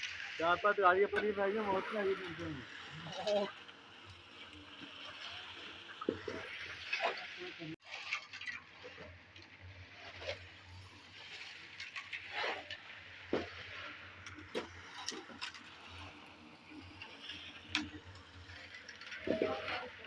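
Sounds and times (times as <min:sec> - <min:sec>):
hand tools scraping concrete: 0:11.6 - 0:12.8.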